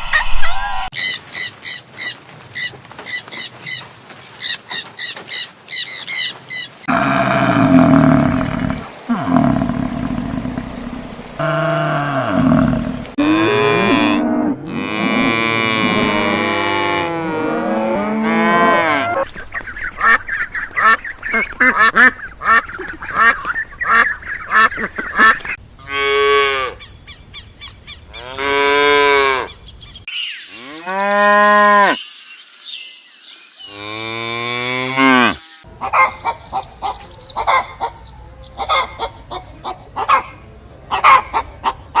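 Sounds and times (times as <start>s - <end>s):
cattle mooing: 6.9s - 19.2s.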